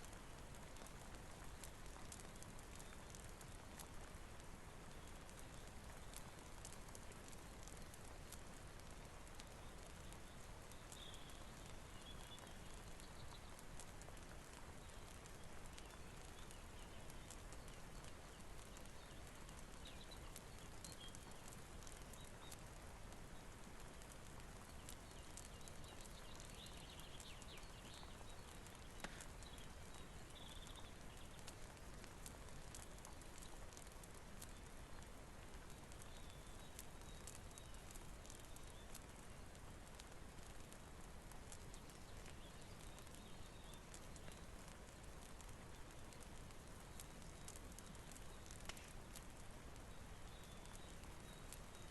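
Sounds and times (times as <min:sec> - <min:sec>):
faint steady rain: 0:00.0 - 0:51.9
wood fire crackling: 0:00.0 - 0:51.9.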